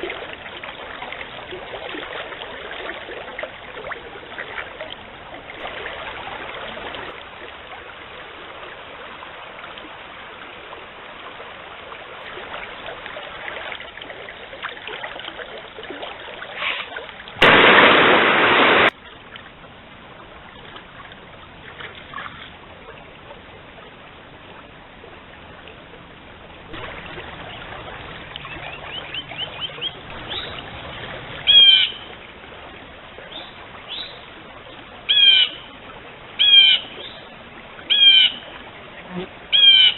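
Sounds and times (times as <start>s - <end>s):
stream water running: 0.0s - 39.9s
short bird calls: 16.6s - 17.0s, 39.5s - 39.9s
sudden loud rush: 17.4s - 18.9s.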